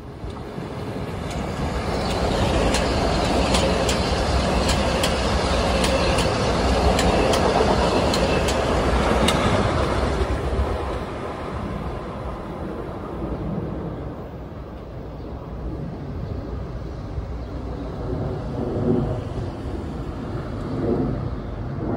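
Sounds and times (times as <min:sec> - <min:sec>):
train passing at speed: 0:00.0 - 0:21.9
wheel clicks over rail joints: 0:01.2 - 0:10.0.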